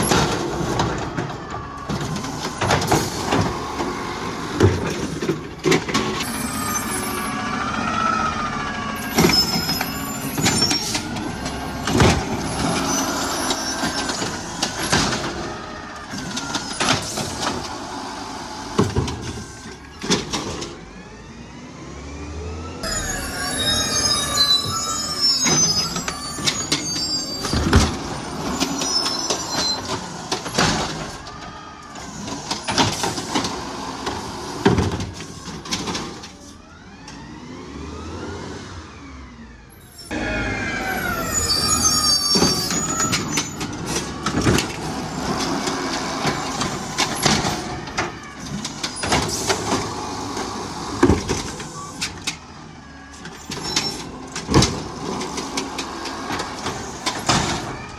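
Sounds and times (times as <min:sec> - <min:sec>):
hydraulics whining: 0:00.0 - 0:57.9
high squeals: 0:06.0 - 0:20.0, 0:22.8 - 0:33.4, 0:39.7 - 0:54.4
metal clanks and bangs: 0:09.0 - 0:17.9.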